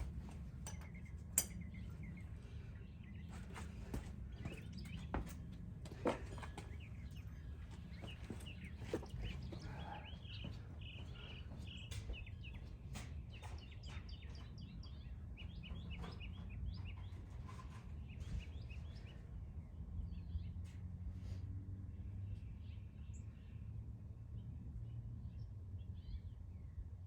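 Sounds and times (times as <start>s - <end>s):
small birds chirping: 0.0s - 20.6s.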